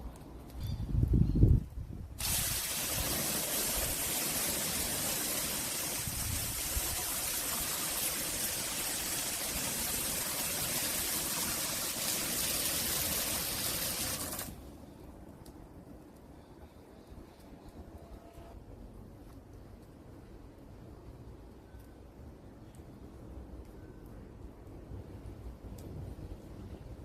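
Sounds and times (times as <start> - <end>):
hissing spray: 2.2 - 14.6.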